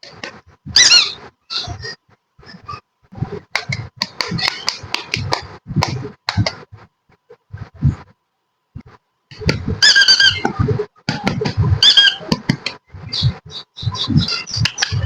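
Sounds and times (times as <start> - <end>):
high wavering squeak: 0.6 - 3.4, 9.6 - 15.0.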